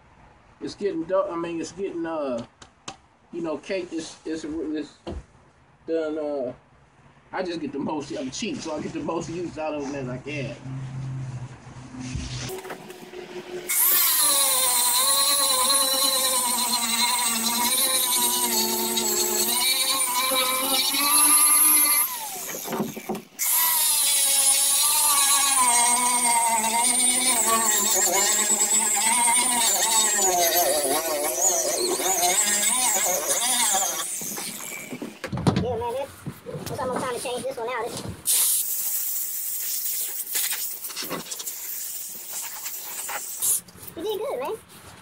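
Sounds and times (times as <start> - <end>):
power sander whining: 12.1 - 35.2.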